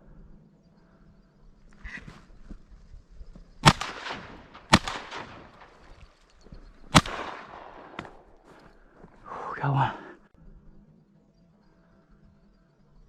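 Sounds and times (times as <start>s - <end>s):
shotgun shots echoing: 3.6s - 6.2s, 6.9s - 8.5s.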